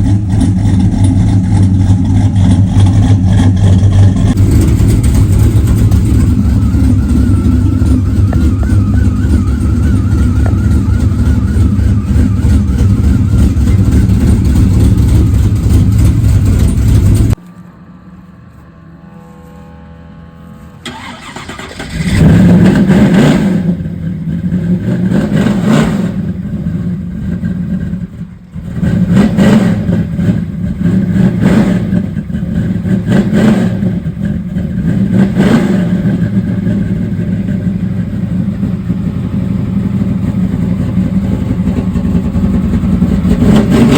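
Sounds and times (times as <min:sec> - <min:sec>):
engine revving in short blips: 0:00.0 - 0:17.6, 0:19.2 - 0:23.9
vehicle engine running: 0:00.0 - 0:43.9.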